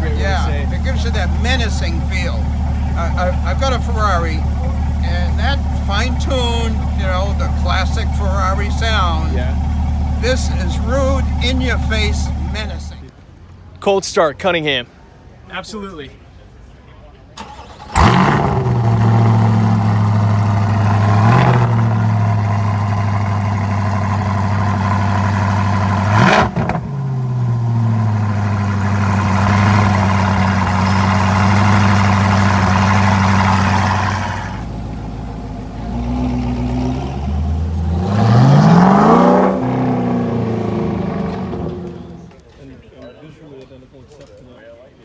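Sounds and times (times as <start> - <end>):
car engine idling and revving: 0.0 - 13.7, 17.4 - 42.4.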